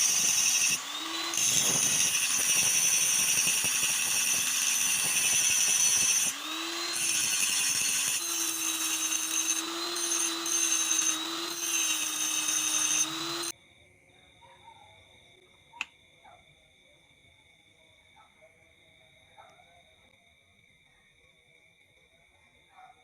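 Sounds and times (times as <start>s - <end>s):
electric power tool running: 0.0s - 13.5s.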